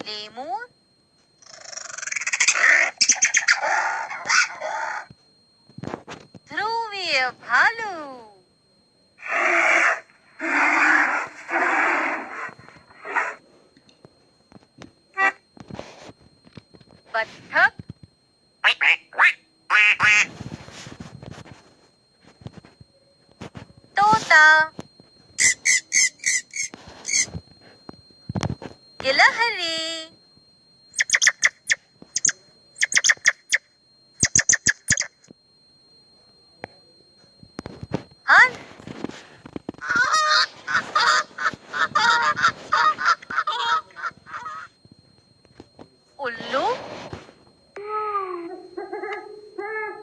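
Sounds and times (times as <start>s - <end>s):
squirrel chirping calls: 1.4s - 5.0s, 25.4s - 27.3s, 31.0s - 33.6s, 34.2s - 35.2s.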